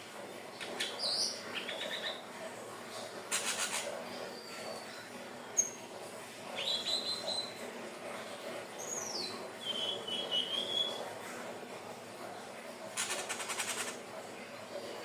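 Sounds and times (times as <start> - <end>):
bird singing whistles and trills: 8.9 - 11.0.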